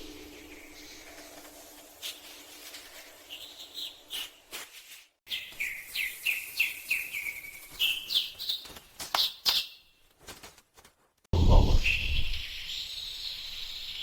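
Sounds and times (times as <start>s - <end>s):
loud low sound: 11.4s - 12.4s.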